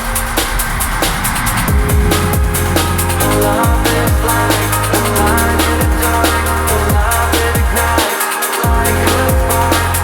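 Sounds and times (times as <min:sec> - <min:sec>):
drum and bass music: 0:00.0 - 0:10.0.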